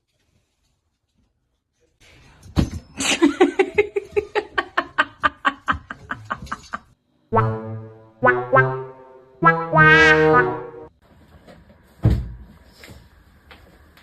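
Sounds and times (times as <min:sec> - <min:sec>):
person laughing: 0:03.0 - 0:06.8.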